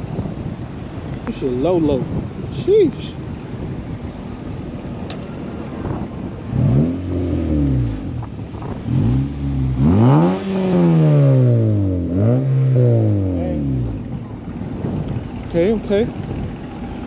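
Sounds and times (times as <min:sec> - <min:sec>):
car engine revving: 0:05.7 - 0:15.3.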